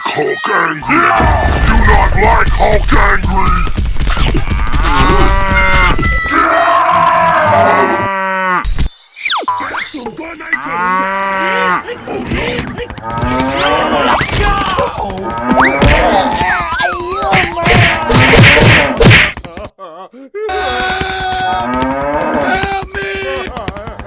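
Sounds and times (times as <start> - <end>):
cattle mooing: 4.6 - 5.9, 10.6 - 11.8.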